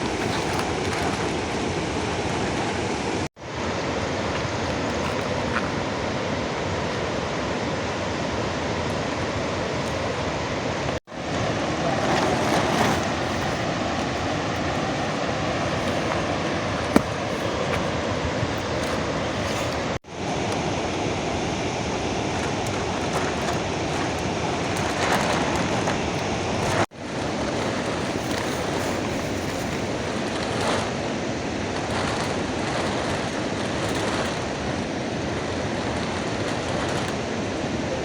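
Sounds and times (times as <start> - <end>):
heavy rain falling: 11.0 - 38.0.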